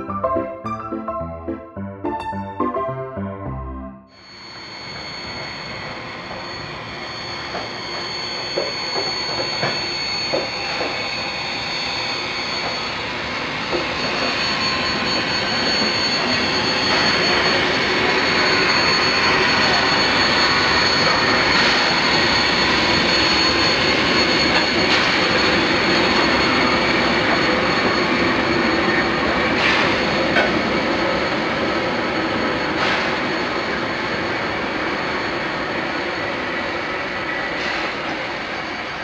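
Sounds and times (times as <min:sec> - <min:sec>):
train clanks: 0:07.5 - 0:11.1, 0:24.2 - 0:31.2.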